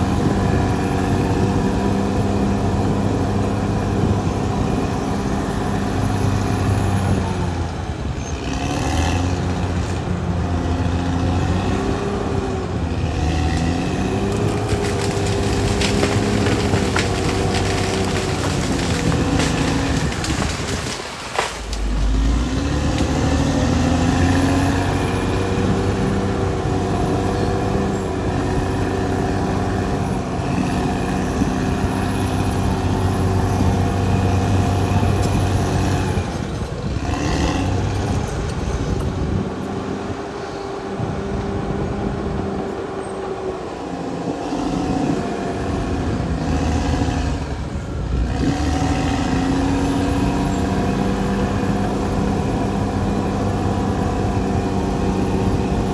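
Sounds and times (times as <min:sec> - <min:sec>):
bulldozer diesel engine running: 0:00.0 - 0:55.9.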